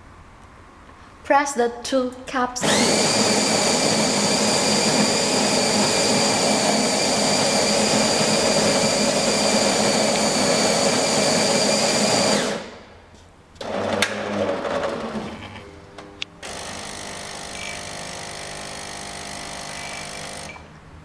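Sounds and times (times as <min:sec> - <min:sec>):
coffee grinder whirring: 0:02.6 - 0:12.8, 0:16.4 - 0:20.7.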